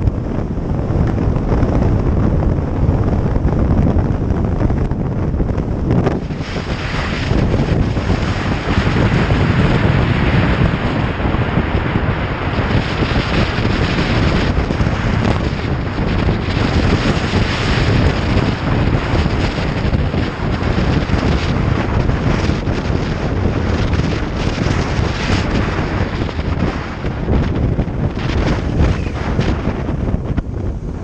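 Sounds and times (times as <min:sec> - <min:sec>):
wind rushing over microphone: 0:00.0 - 0:31.0.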